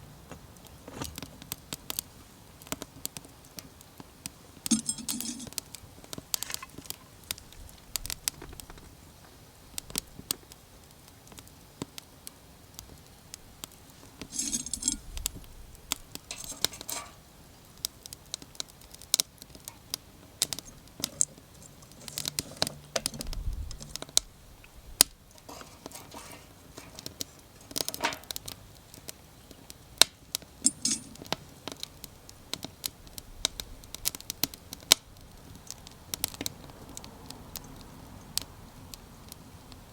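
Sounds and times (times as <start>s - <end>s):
wood fire crackling and popping: 0.2s - 39.9s
rustling or scraping: 4.7s - 5.6s, 6.3s - 7.2s, 13.9s - 17.3s, 19.6s - 24.2s, 25.2s - 28.5s, 30.6s - 31.3s.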